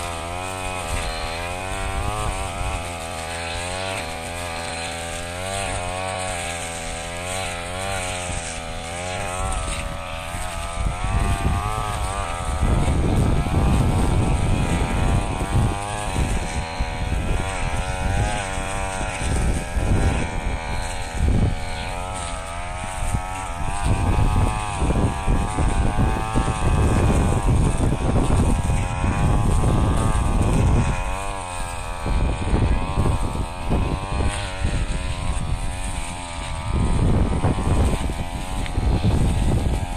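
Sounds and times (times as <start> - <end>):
blade cutting straw: 0.0 - 39.9
brush cutter engine running: 0.0 - 39.9.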